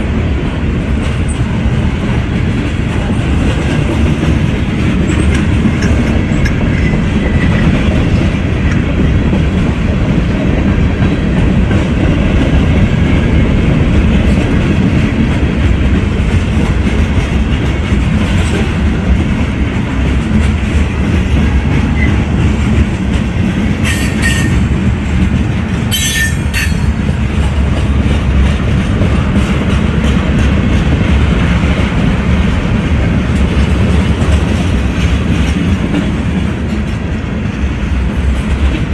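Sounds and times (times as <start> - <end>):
train wheels rumbling on rails: 0.0 - 38.9
high-pitched wheel squeals: 23.8 - 24.6, 25.9 - 26.9.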